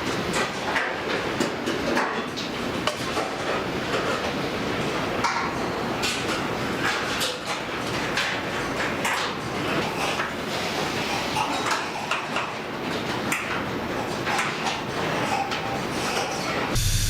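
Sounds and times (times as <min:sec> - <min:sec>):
production line machinery din: 0:16.0 - 0:17.0.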